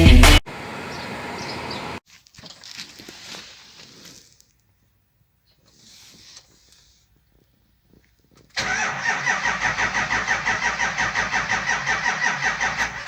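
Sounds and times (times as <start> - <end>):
diesel engine cranking on starter: 8.5 - 13.0.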